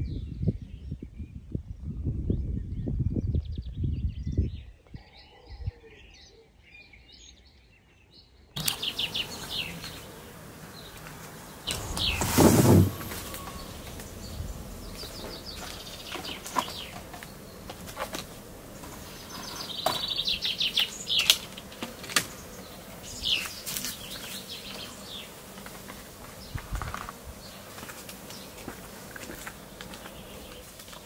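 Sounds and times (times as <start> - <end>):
birds chirping: 6.0 - 31.0
bird trill: 11.6 - 17.6.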